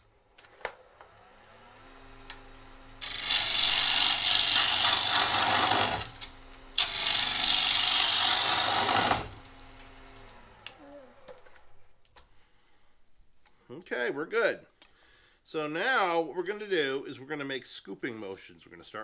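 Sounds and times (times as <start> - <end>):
lathe motor hum: 0.7 - 10.8
gouge cutting wood on a lathe: 3.0 - 9.6.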